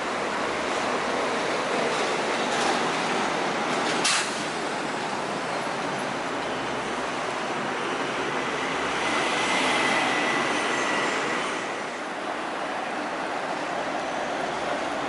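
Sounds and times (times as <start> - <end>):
highway traffic noise: 0.0 - 15.0.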